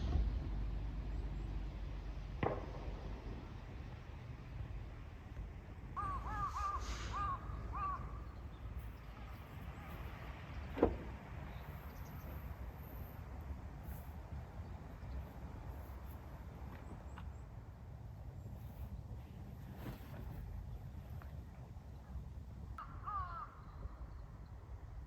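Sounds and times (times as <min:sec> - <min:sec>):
crow cawing: 0:06.0 - 0:08.2, 0:22.8 - 0:23.8.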